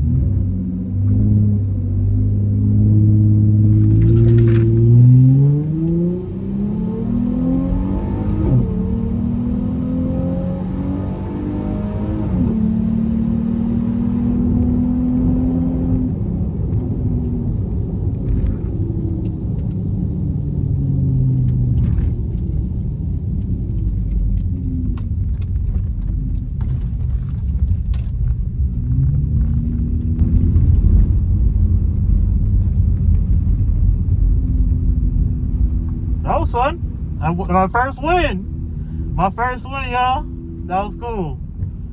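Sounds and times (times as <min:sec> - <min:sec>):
car engine revving: 0:02.3 - 0:16.1, 0:36.3 - 0:41.4.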